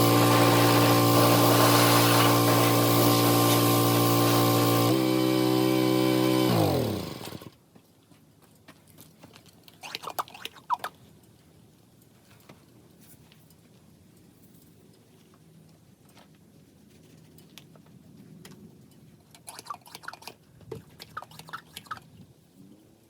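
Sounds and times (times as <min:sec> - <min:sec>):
pressure washer spraying: 0:00.0 - 0:07.4.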